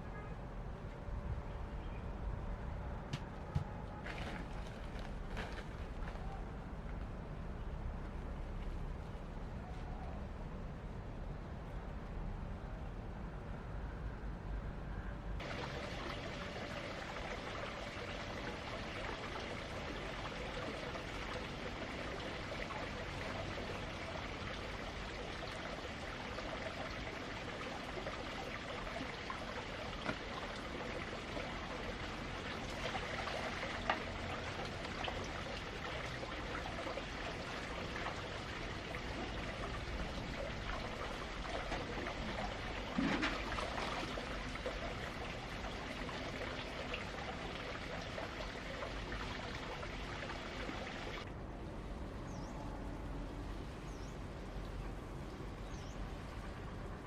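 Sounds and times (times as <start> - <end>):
water running: 15.4 - 51.2.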